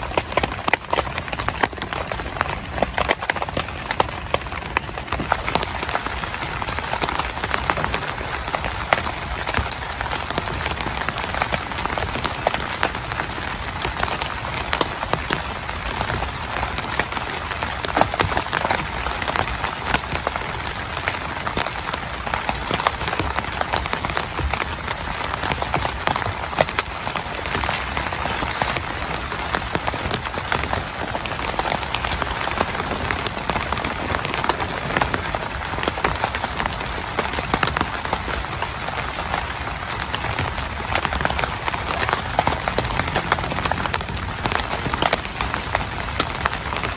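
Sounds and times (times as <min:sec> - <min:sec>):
heavy rain on a tent: 0:00.0 - 0:46.9.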